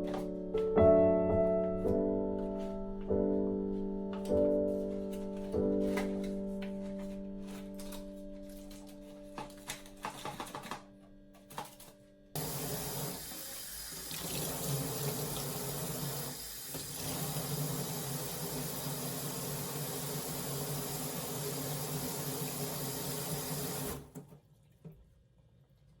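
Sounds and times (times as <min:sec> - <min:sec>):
background music: 0:00.0 - 0:12.6
water running from tap into sink: 0:12.4 - 0:24.2.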